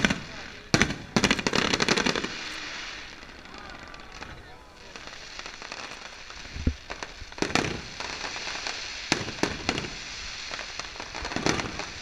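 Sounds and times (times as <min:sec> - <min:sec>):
firework bangs: 0:00.0 - 0:12.0
firework crackling: 0:00.0 - 0:12.0.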